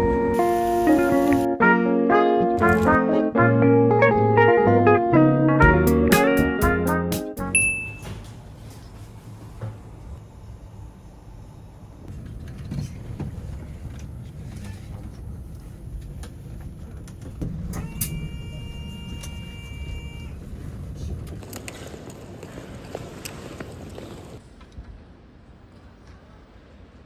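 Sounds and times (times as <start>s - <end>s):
vehicle rumble: 8.2s - 24.4s.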